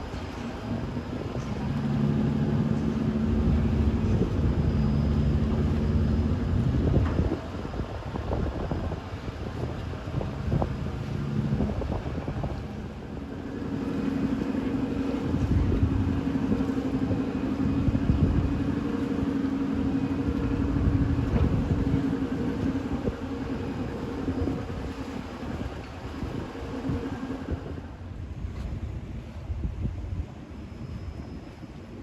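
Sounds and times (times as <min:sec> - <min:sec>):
wind buffeting microphone: 0:00.0 - 0:32.0
diesel engine running: 0:00.7 - 0:07.6, 0:10.8 - 0:28.1
hum: 0:10.9 - 0:29.5.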